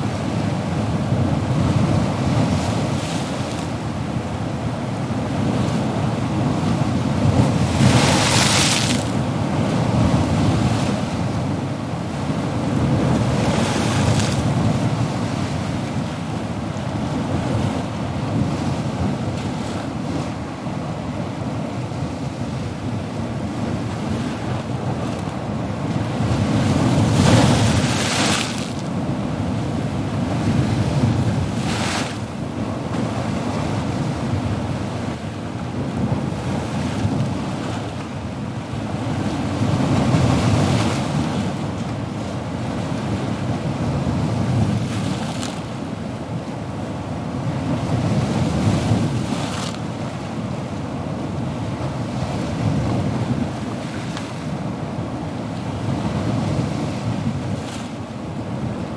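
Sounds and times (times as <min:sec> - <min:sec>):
ocean waves breaking: 0:05.3 - 0:11.4, 0:12.1 - 0:16.0, 0:23.5 - 0:34.2.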